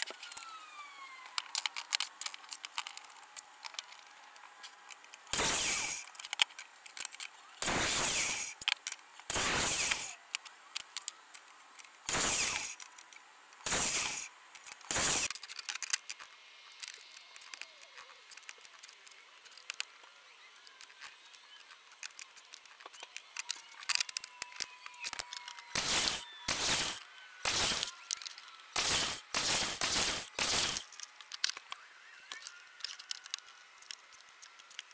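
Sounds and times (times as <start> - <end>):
small clicks and handling: 0.0 - 34.9
miter saw cutting wood: 5.3 - 6.1, 7.6 - 8.6, 9.3 - 10.2, 12.1 - 12.8, 13.6 - 14.3, 14.9 - 15.3, 25.5 - 28.0, 28.7 - 30.9.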